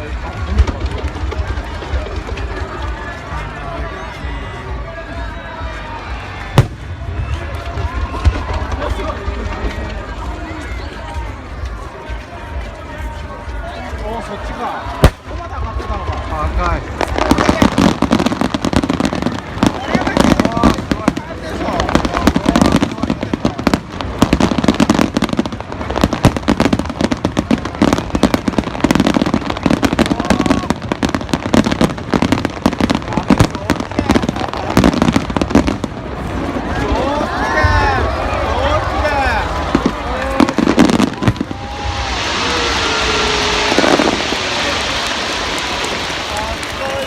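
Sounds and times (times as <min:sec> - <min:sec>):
fireworks bursting: 0:00.0 - 0:04.1, 0:06.6 - 0:13.2, 0:14.8 - 0:47.0.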